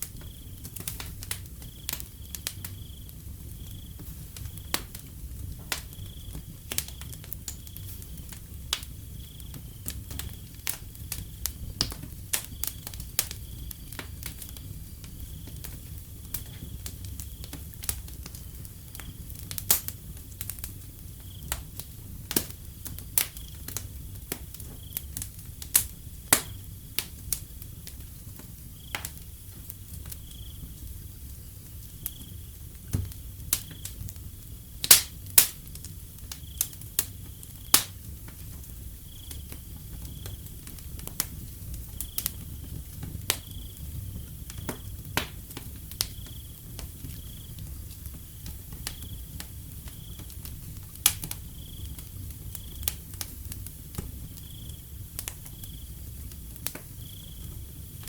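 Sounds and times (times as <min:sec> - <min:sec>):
crickets chirping: 0:00.0 - 0:19.4, 0:20.0 - 0:58.0
wood fire crackling and popping: 0:00.0 - 0:58.0.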